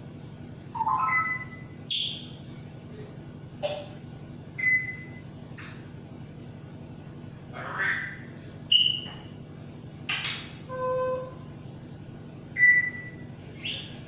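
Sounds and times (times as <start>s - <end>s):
bird squawking: 0.8s - 2.3s, 7.6s - 9.2s, 13.6s - 14.0s
bird whistling: 0.8s - 2.4s, 4.6s - 5.2s, 7.9s - 9.2s, 10.8s - 14.0s.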